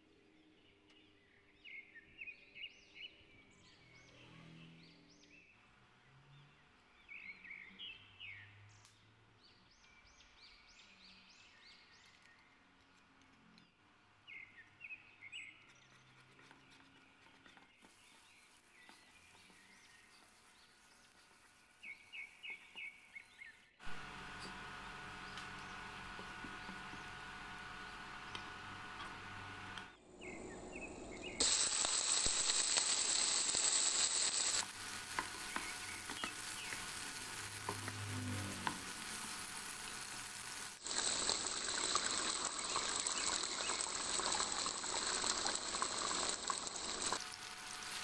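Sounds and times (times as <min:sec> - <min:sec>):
garlic frying in oil: 0:17.8 - 0:23.2, 0:23.8 - 0:30.0, 0:31.4 - 0:48.0.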